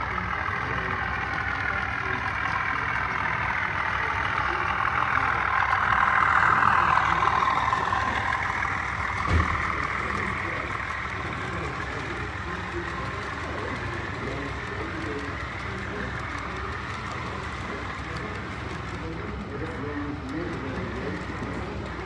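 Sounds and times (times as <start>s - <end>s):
diesel locomotive engine running: 0.0s - 22.0s
short low thump: 9.2s - 10.0s.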